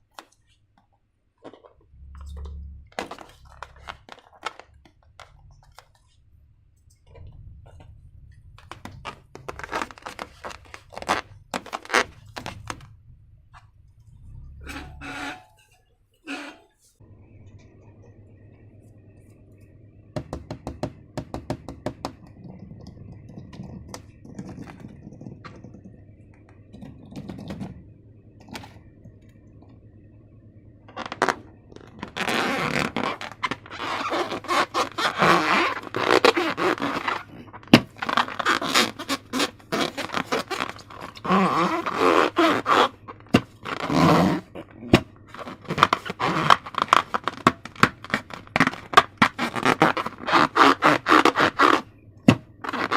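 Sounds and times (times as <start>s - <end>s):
slime squelching: 7.0s - 13.8s.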